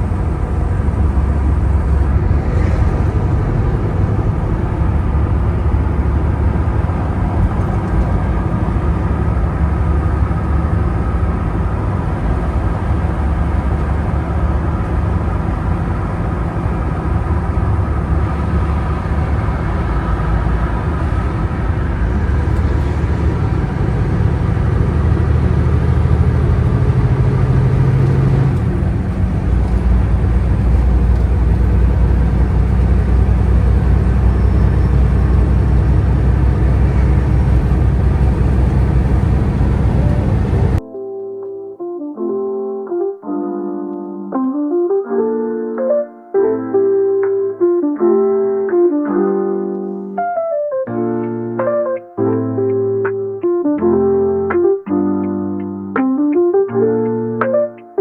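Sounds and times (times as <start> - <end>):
road noise: 0.0 - 40.8
truck engine droning: 0.0 - 40.8.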